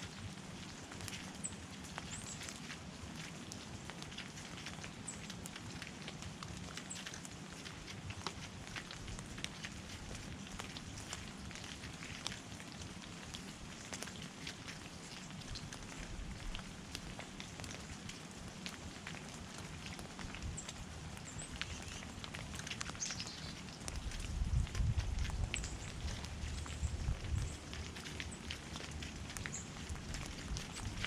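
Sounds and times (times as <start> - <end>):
faint hiss with crackles: 0.0 - 31.0
high bird chirps: 23.0 - 23.6.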